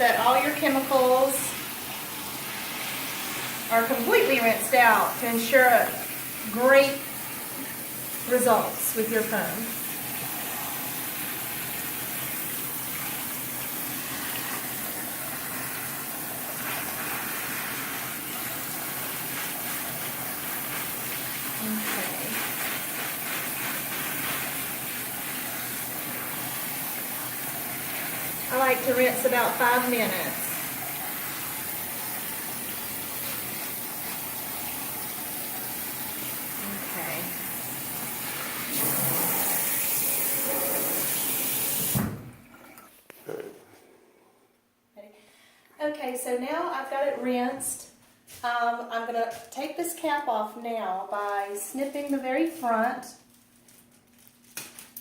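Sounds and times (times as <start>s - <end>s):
water running over hair: 0.0s - 42.8s.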